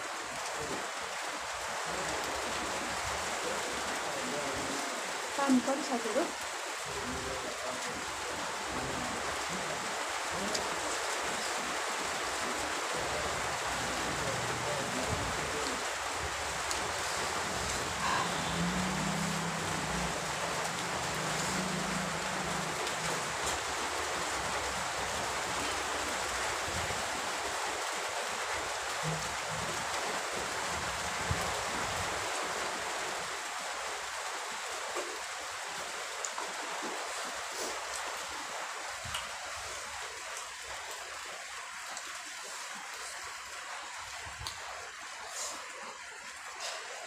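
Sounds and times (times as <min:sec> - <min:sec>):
rain falling: 0:00.0 - 0:47.0.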